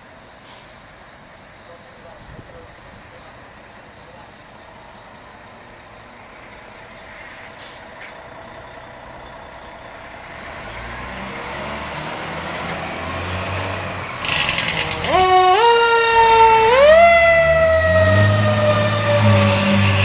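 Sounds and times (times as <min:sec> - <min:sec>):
fire engine diesel rumble: 0:00.0 - 0:20.0
air brake hiss: 0:00.4 - 0:00.9, 0:07.3 - 0:07.9.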